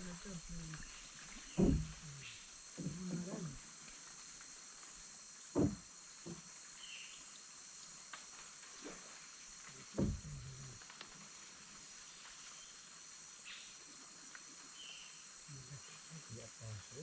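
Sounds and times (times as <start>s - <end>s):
insects chorus: 0.0s - 17.0s
dull thump: 1.5s - 2.2s, 5.6s - 6.4s, 9.9s - 10.5s.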